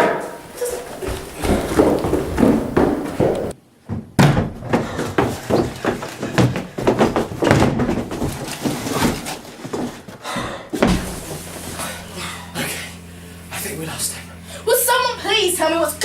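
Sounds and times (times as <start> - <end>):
knocks and bangs: 0.0 - 3.5
people running on hard floor: 0.0 - 12.1.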